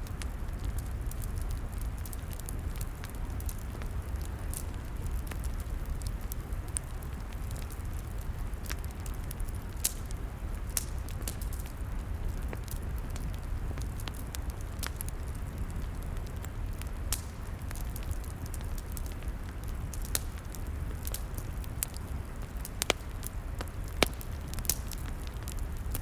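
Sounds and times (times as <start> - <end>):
log fire crackling: 0.0 - 26.0.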